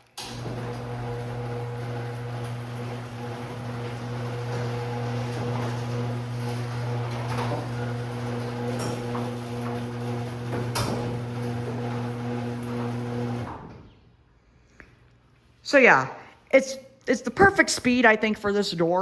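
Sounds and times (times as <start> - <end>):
garage door opener buzzing hum: 0.0 - 14.0.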